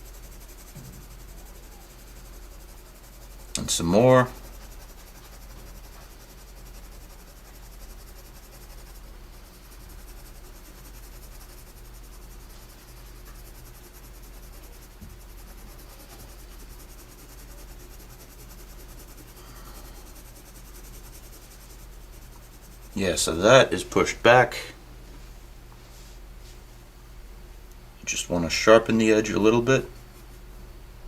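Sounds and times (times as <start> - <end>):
pencil scratching on paper: 0.0 - 23.7
low electrical hum: 0.0 - 31.0.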